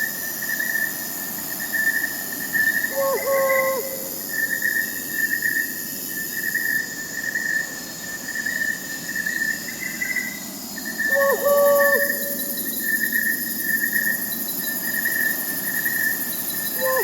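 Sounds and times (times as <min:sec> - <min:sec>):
crickets chirping: 0:00.0 - 0:17.0
high insect whine: 0:00.0 - 0:17.0
owl hooting: 0:02.9 - 0:04.6, 0:11.0 - 0:13.0, 0:16.8 - 0:17.0.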